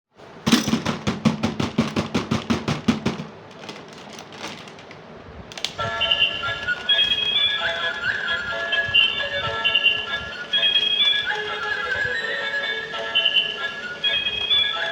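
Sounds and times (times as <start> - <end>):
music: 5.8 - 14.9.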